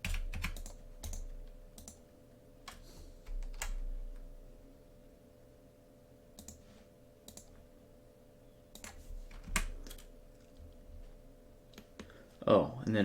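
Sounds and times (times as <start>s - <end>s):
keyboard keystrokes and clicks: 0.0s - 2.0s, 2.7s - 4.2s, 6.4s - 6.6s, 7.2s - 7.6s, 8.7s - 10.7s
faint steady hum: 0.0s - 13.0s.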